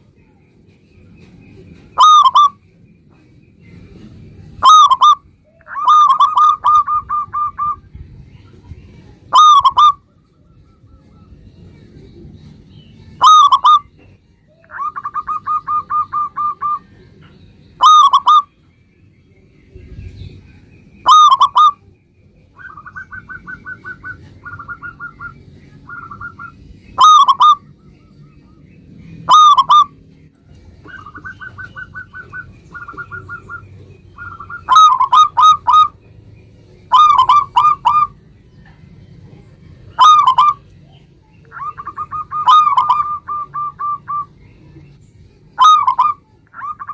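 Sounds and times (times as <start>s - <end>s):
doves cooing: 1.7s - 2.6s, 4.0s - 7.9s, 9.3s - 10.2s, 13.2s - 17.2s, 17.8s - 18.5s, 21.0s - 21.8s, 22.5s - 27.8s, 29.2s - 36.0s, 36.8s - 38.8s, 39.8s - 44.9s, 45.5s - 46.9s.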